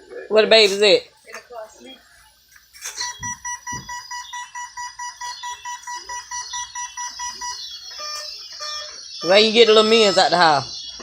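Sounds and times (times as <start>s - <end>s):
rapid short high beeps: 3.0s - 10.7s.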